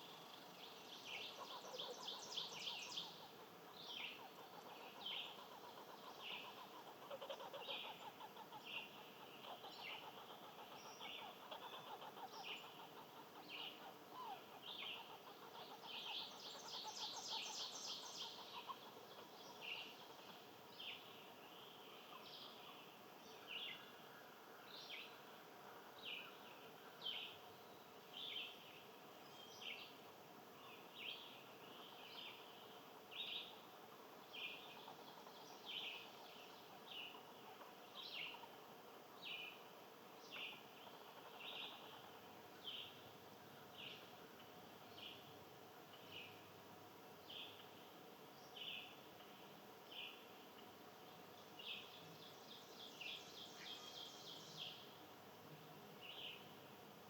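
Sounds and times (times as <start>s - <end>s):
bird calling: 1.1s - 20.4s.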